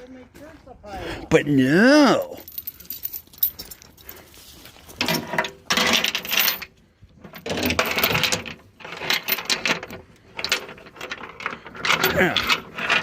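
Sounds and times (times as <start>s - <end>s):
steel chain rattling: 2.0s - 4.2s, 4.9s - 13.0s.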